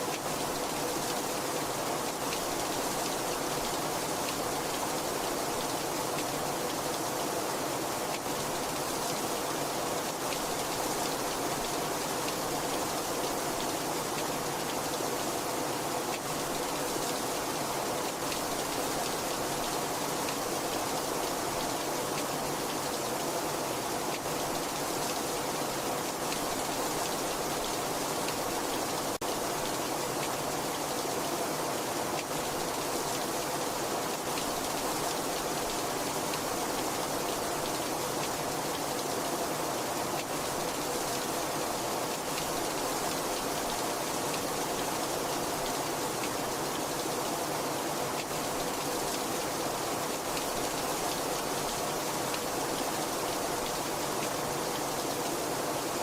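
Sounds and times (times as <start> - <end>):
very heavy rain: 0.0 - 56.0.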